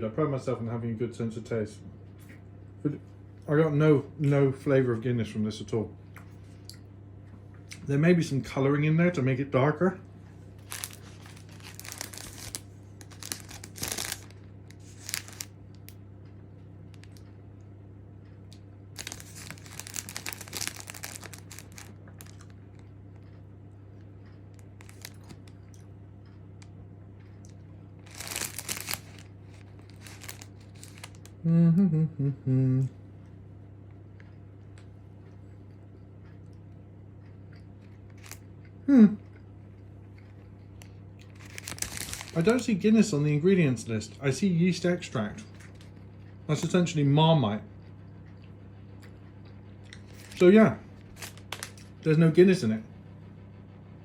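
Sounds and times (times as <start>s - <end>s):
low steady hum: 0.0s - 54.0s
plastic packet crinkling: 10.6s - 16.0s, 19.0s - 22.8s, 24.6s - 25.7s, 27.5s - 31.3s, 38.1s - 38.5s, 40.8s - 43.2s, 50.0s - 52.0s
person humming: 31.4s - 33.0s.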